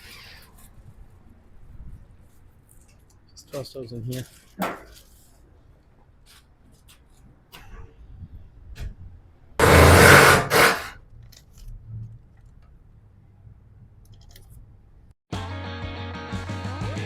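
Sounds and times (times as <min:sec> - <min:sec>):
faint handling noises: 0:00.4 - 0:07.8
loud rasping scrape: 0:09.6 - 0:11.0
rock music with electric guitar: 0:15.3 - 0:17.0.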